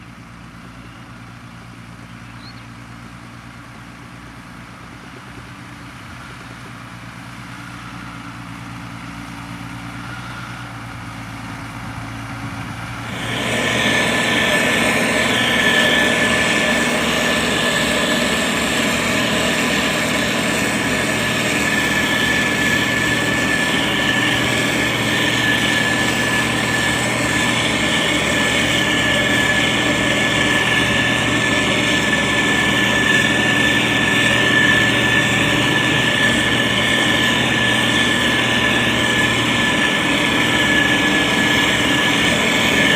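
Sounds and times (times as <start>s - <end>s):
diesel engine running: 0.0s - 42.9s
steady high whine: 0.0s - 42.9s.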